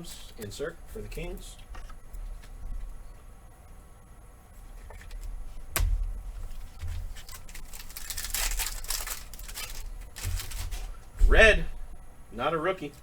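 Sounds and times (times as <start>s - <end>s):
card pack wrapper crinkling: 7.0s - 10.9s.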